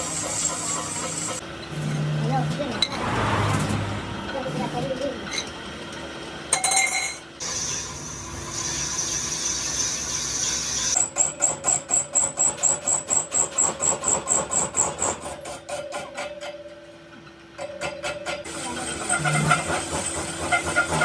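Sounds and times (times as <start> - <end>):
tool hissing: 7.4 - 11.0
squeaking scrapes on metal: 18.8 - 19.9.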